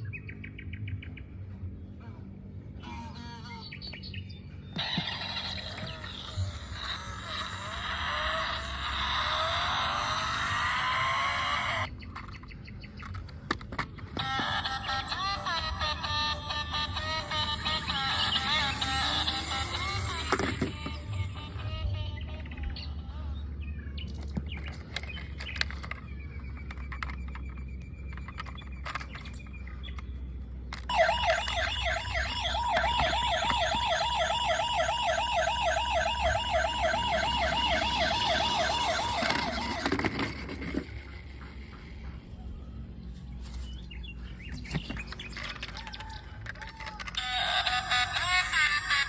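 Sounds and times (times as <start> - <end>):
toy electronic siren warbling: 4.7 - 12.0, 14.1 - 23.5, 24.1 - 29.4, 30.8 - 41.6, 45.1 - 49.0.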